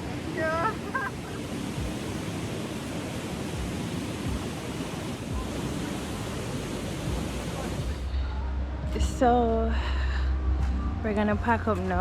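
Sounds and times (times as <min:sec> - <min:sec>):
water rushing: 0:00.0 - 0:09.8
wind thumps on microphone: 0:01.2 - 0:08.1.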